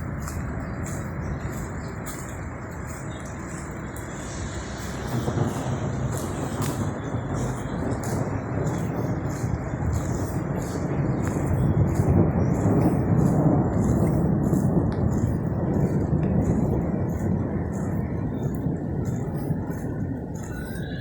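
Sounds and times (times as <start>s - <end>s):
low rumble: 0.0s - 21.0s
rain in a street: 0.0s - 21.0s.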